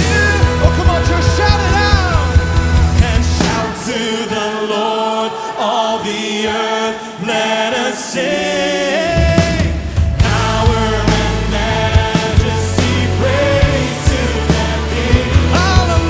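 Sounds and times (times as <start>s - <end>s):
band deep low end: 0.0s - 3.7s, 9.3s - 16.0s
voices singing: 0.0s - 16.0s.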